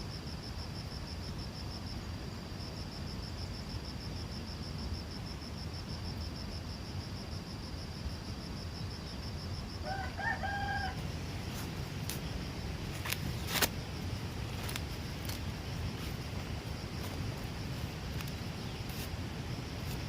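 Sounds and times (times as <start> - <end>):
insect trilling: 9.1 - 20.0
rooster crowing: 9.8 - 11.1.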